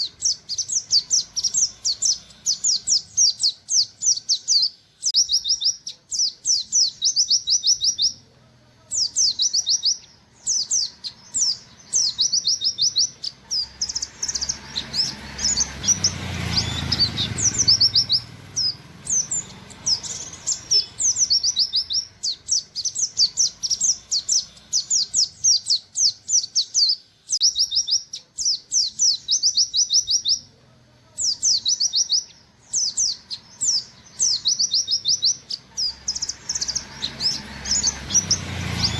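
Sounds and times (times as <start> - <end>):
bird singing rapid high notes: 0.0 - 8.2, 8.9 - 30.5, 31.2 - 38.9.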